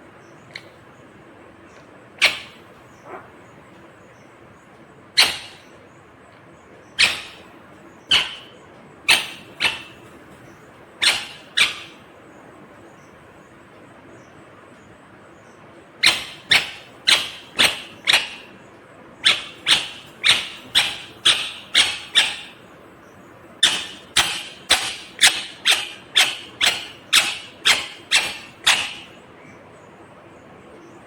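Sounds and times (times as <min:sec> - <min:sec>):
parakeet screeching: 0:02.2 - 0:03.4, 0:05.2 - 0:05.8, 0:07.0 - 0:12.1, 0:16.0 - 0:18.6, 0:19.2 - 0:22.7, 0:23.6 - 0:29.2.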